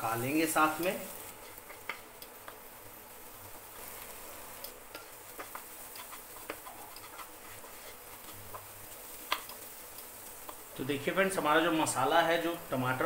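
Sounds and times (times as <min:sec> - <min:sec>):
masala frying crackles: 0:00.0 - 0:13.0
wooden spatula stirring: 0:04.9 - 0:09.7.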